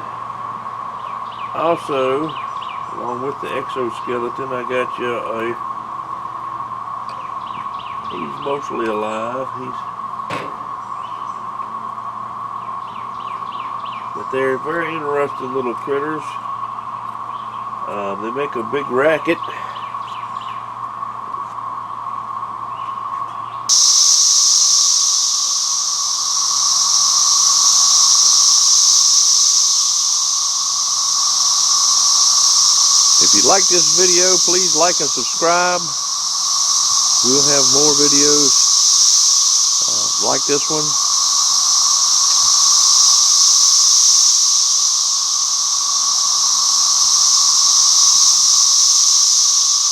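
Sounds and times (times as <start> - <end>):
cicadas buzzing: 0.0 - 49.9.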